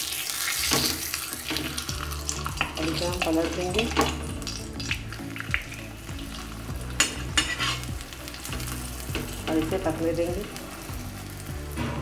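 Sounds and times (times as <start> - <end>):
bread sizzling in ghee: 0.0 - 12.0
steel spoon scraping griddle: 6.8 - 9.9.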